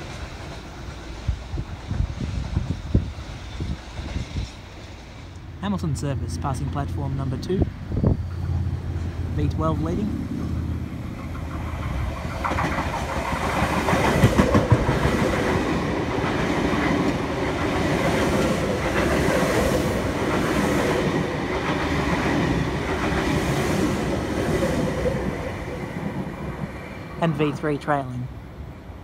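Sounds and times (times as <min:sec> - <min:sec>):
electric train passing: 0:00.0 - 0:29.0
wheels clicking over rail joints: 0:11.0 - 0:23.5.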